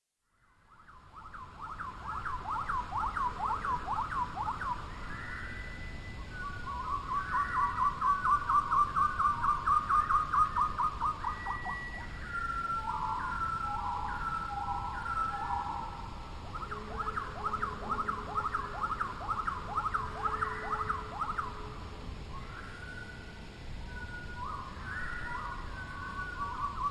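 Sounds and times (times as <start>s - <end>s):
songbirds singing: 0.4s - 26.9s.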